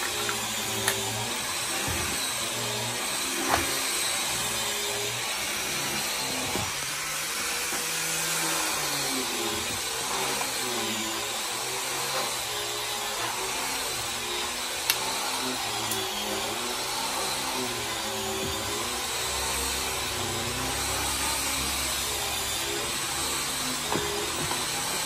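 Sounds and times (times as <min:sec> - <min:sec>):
woodworking power tool running: 0:00.0 - 0:25.0.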